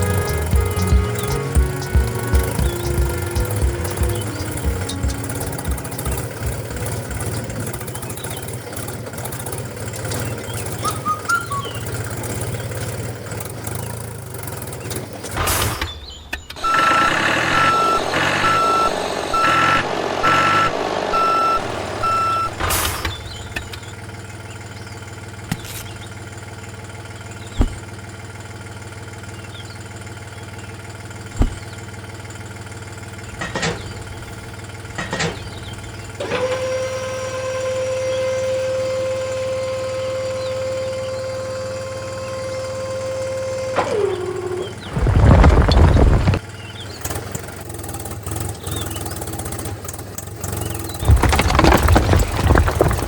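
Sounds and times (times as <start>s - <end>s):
electronic reversing alarm beeps: 16.6s - 22.6s.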